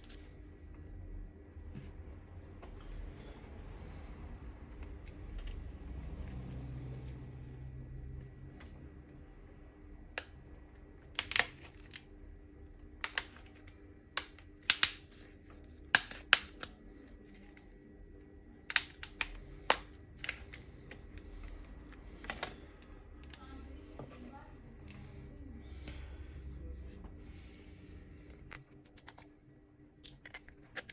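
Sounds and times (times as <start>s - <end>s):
small tools clicking and tapping: 11.0s - 12.0s, 13.0s - 16.8s, 18.7s - 23.5s.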